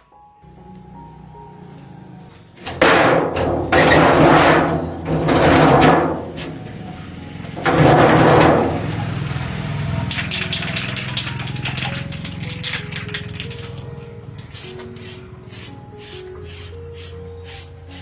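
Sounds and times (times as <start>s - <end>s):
pressure washer spraying: 7.1s - 18.0s.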